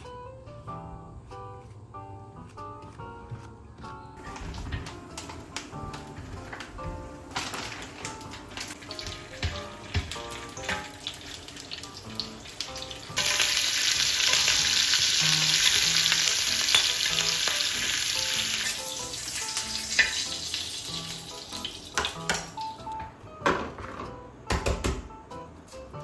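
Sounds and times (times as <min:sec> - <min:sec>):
food sizzling in a frying pan: 0:07.3 - 0:22.8.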